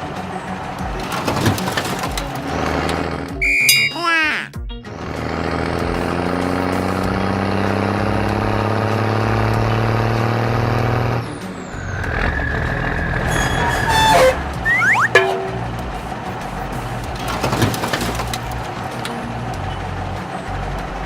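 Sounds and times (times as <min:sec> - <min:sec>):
held high tone: 0:03.4 - 0:04.5, 0:13.9 - 0:15.8
quick sliding squeaks: 0:13.1 - 0:15.7.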